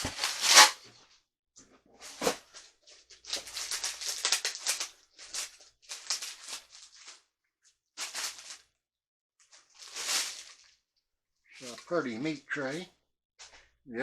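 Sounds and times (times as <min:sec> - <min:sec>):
packaging wrap crinkling: 0:00.0 - 0:00.8, 0:02.0 - 0:07.3, 0:08.0 - 0:08.7, 0:09.4 - 0:10.8.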